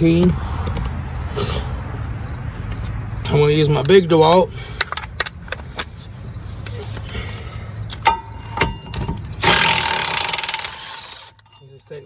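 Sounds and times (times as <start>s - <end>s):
impact wrench hammering: 8.0s - 11.4s
ringing metal clinks: 8.0s - 12.0s.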